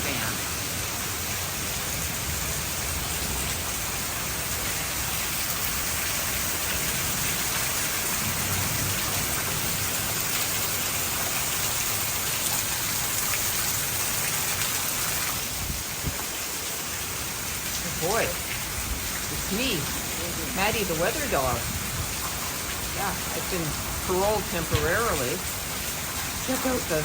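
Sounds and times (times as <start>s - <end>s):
heavy rain pouring: 0.0s - 27.0s
wind rumble: 15.4s - 16.6s, 17.8s - 26.5s.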